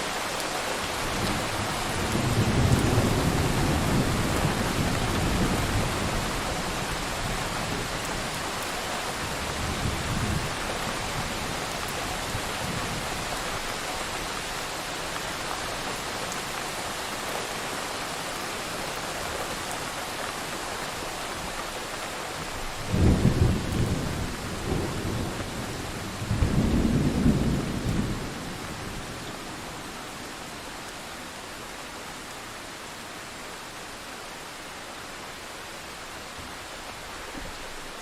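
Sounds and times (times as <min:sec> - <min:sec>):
steady rain: 0:00.0 - 0:38.0
thunder rumbling: 0:22.8 - 0:29.4.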